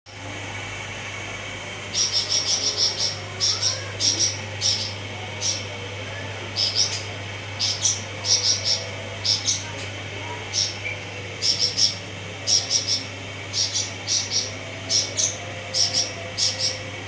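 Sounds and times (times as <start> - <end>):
steady low hum: 0.1 - 17.0.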